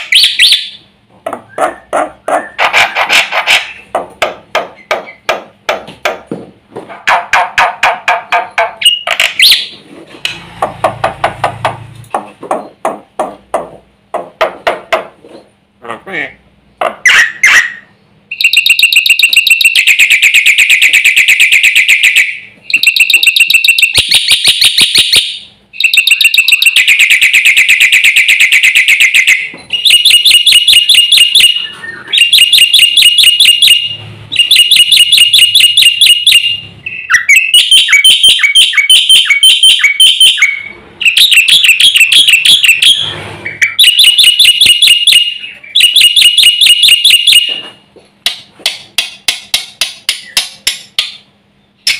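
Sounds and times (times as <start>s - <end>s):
starling chattering song: 25.8s - 47.4s.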